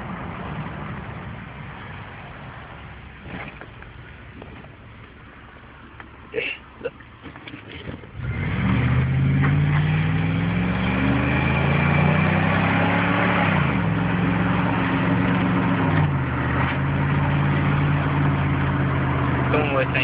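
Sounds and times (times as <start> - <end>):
truck engine accelerating: 7.8 - 20.0.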